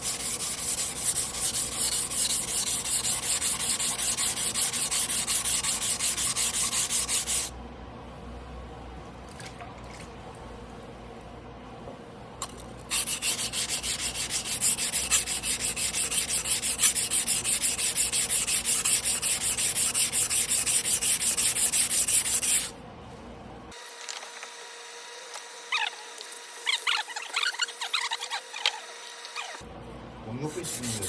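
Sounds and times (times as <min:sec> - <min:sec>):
knife scraping on whetstone: 0:00.0 - 0:07.5, 0:12.9 - 0:22.7.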